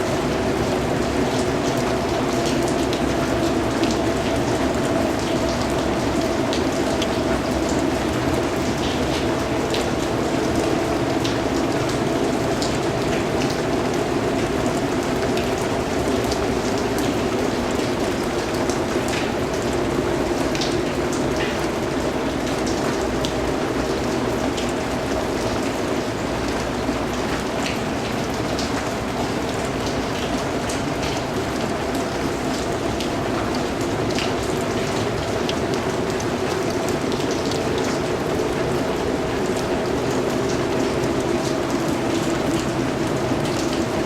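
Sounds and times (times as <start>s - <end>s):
rain pattering on a surface: 0.0s - 44.0s.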